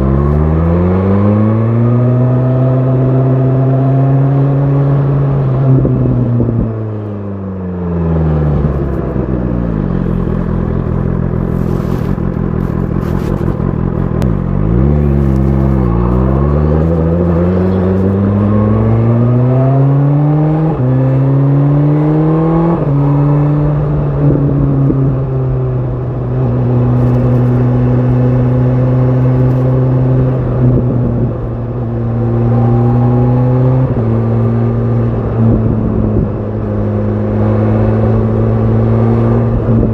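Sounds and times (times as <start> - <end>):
motorcycle engine accelerating: 0.0 - 39.9
gear changes: 8.4 - 20.1, 23.8 - 39.9.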